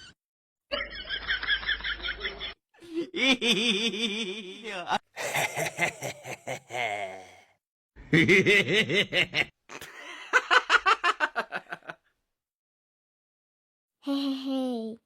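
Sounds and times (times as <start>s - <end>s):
person laughing: 2.0s - 7.4s.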